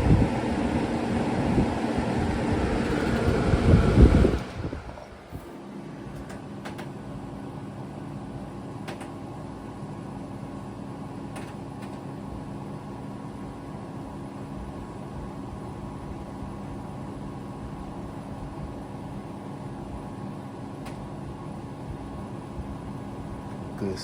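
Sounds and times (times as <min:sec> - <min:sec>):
faint airflow: 0:00.0 - 0:06.1
fan coasting down hum: 0:00.0 - 0:24.0.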